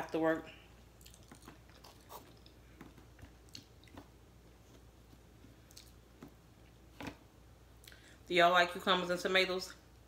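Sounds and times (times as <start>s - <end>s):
faint chewing: 0.9s - 6.3s.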